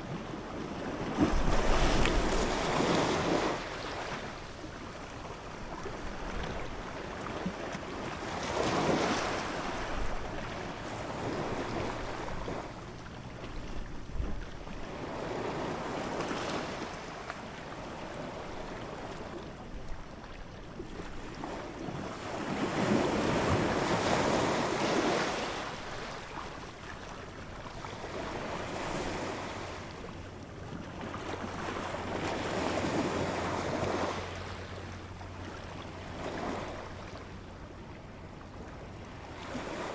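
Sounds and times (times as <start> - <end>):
ocean waves breaking: 0.2 - 5.2, 5.8 - 19.4.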